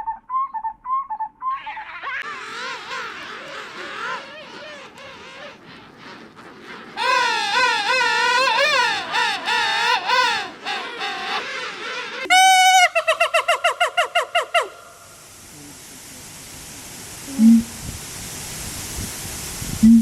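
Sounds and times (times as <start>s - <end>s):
animal trembling pulsed call: 1.2s - 12.3s
animal high looping calls: 1.2s - 14.8s.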